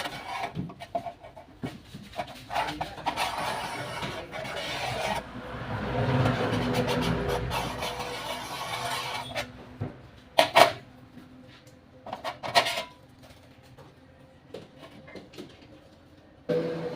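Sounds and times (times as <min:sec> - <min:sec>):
metal being filed by hand: 0:00.0 - 0:09.6.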